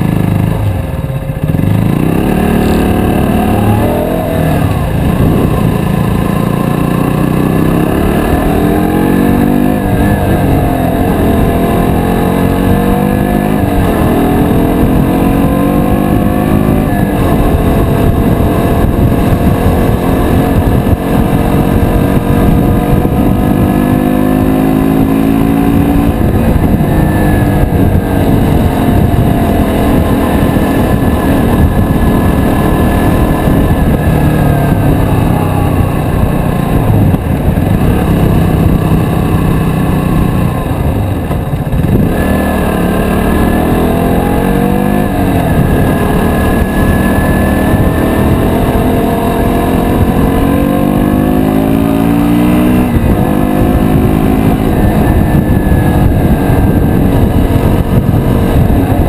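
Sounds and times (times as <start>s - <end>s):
low wind rumble: 0.0s - 59.0s
motorcycle engine pulling through gears: 0.0s - 59.0s.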